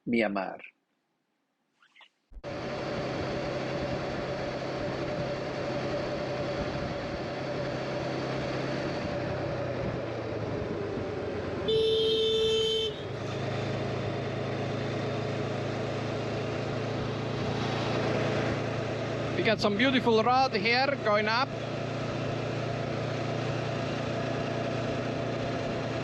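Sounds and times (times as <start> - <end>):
motorcycle engine running: 2.4 - 26.0
road and wind noise: 2.4 - 26.0
vehicle horn: 11.6 - 13.2.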